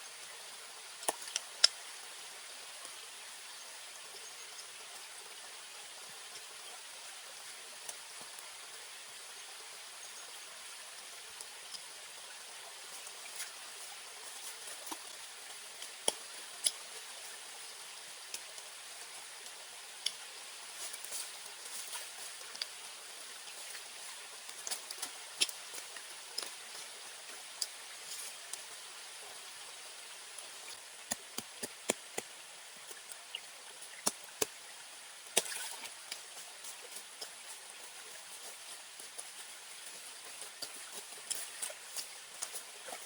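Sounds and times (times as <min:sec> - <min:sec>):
campfire crackling and popping: 0:30.7 - 0:33.2.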